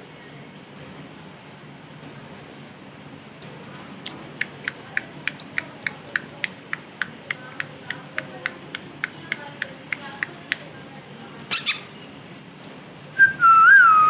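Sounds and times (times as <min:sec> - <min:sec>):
parrot chirping: 0:11.4 - 0:12.1.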